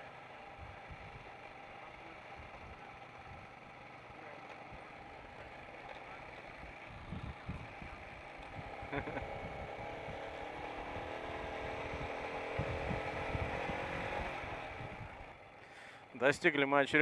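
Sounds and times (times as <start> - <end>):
motorcycle engine running: 0.0 - 17.0
wind buffeting microphone: 6.7 - 15.3.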